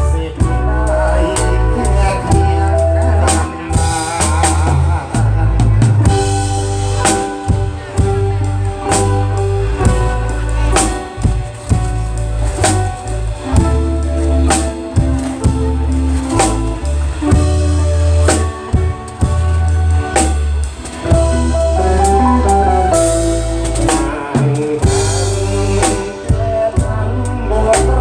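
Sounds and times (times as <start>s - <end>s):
guitar melody: 0.0s - 28.0s
heavy bass notes: 0.0s - 28.0s
drum kit hits: 5.6s - 26.9s.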